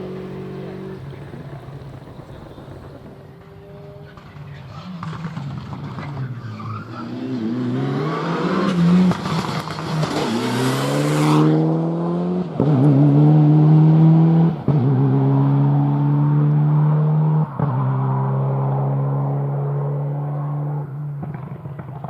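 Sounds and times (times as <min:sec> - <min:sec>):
rally car engine accelerating: 0:00.0 - 0:22.0.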